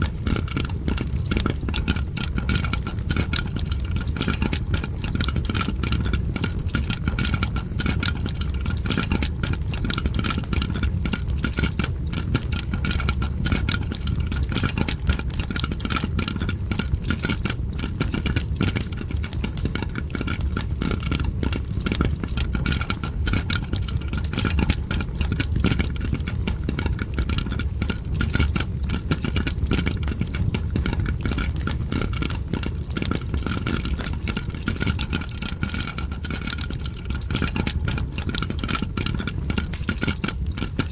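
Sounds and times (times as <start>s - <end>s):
popcorn popping: 0.0s - 40.9s
fireplace crackling: 17.8s - 40.9s.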